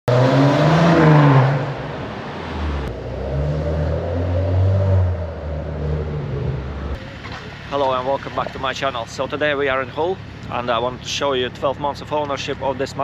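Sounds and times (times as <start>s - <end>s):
car engine revving: 0.1s - 9.0s.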